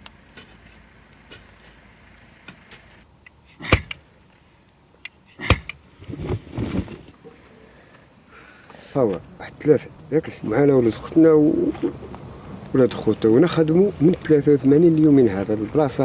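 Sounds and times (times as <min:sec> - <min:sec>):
tool striking rock: 0:03.5 - 0:04.0, 0:05.3 - 0:06.4
knocking and scraping on rock: 0:05.3 - 0:07.2.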